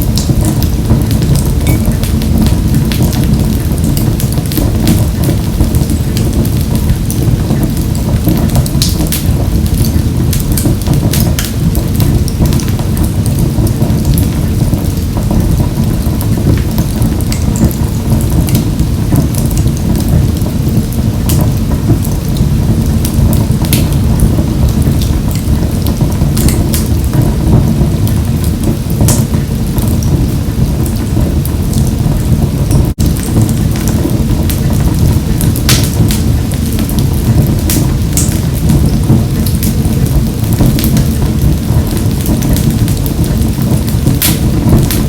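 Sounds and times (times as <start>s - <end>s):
fire crackles and pops: 0.0s - 45.0s
roar of flames: 0.0s - 45.0s.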